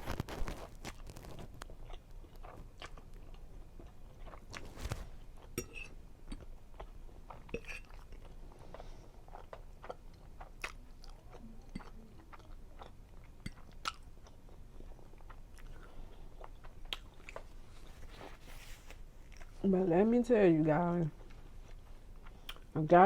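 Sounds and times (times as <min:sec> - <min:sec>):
wet chewing mouth sounds: 0:00.8 - 0:04.7, 0:05.4 - 0:18.4.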